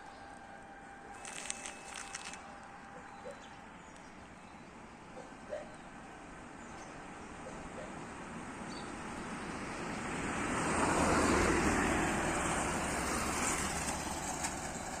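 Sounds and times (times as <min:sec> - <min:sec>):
vehicle passing: 0:09.3 - 0:15.0.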